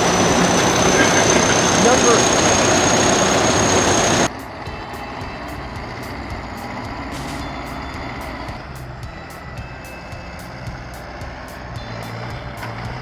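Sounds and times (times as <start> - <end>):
loud rushing hiss with whine: 0.0 - 4.3
heavy machine engine running: 0.0 - 13.0.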